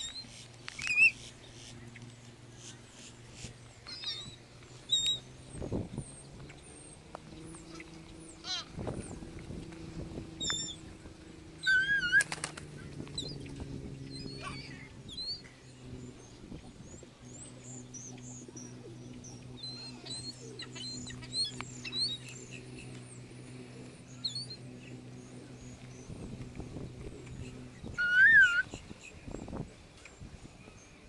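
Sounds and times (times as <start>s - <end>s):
bird warbling call: 0.0s - 2.1s, 3.8s - 5.3s, 10.3s - 23.2s, 24.0s - 26.2s, 27.2s - 29.4s
wing flaps: 0.0s - 30.6s
birds chirping: 0.0s - 31.0s
steady low hum: 0.0s - 31.0s.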